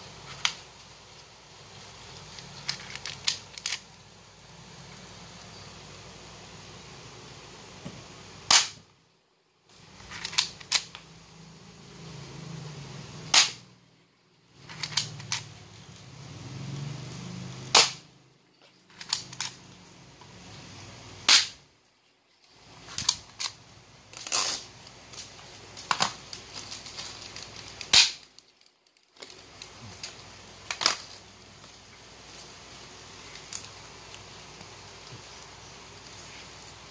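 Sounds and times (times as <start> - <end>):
toy pistol firing snaps: 8.5 - 8.8, 13.3 - 13.6, 17.7 - 18.0, 21.3 - 21.6, 27.9 - 28.2.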